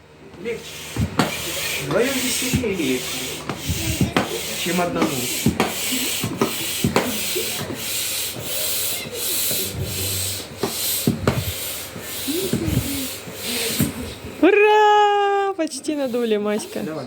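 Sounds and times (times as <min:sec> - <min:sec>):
air pump whooshing: 0:00.4 - 0:14.5, 0:15.7 - 0:17.0.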